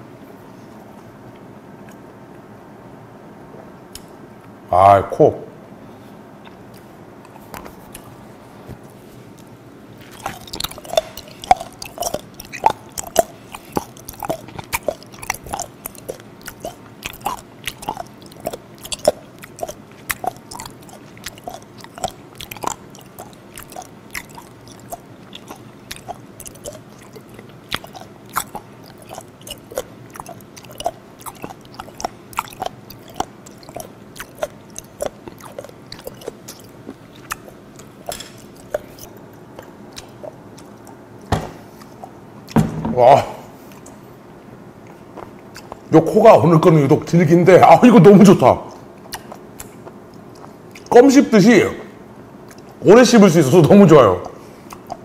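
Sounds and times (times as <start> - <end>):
wet chewing clicks and smacks: 9.3 - 42.6, 44.8 - 45.9, 47.6 - 51.0, 52.4 - 55.0.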